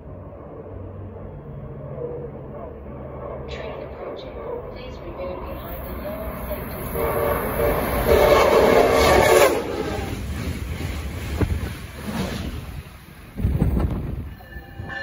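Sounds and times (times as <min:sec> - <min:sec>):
train rushing past: 0:00.0 - 0:15.0
train horn: 0:06.7 - 0:10.2
wind buffeting microphone: 0:10.0 - 0:15.0.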